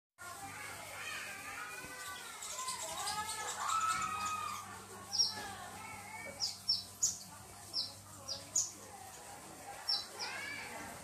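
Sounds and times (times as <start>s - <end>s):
small bird chirping: 1.8s - 5.6s, 6.2s - 10.8s.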